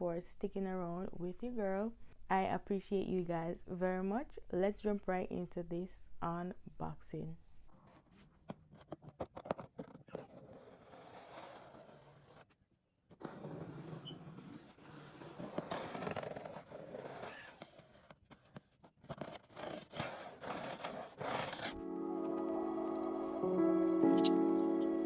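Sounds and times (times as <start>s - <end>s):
packaging rustling and scraping: 13.2s - 21.8s.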